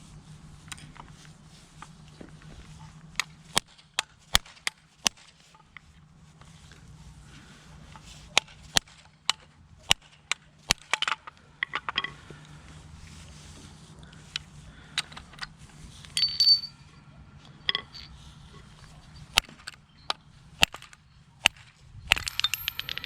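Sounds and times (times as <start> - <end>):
light ringing clinks: 16.0 - 20.3, 22.0 - 23.0
hand tools knocking on metal: 16.2 - 16.9.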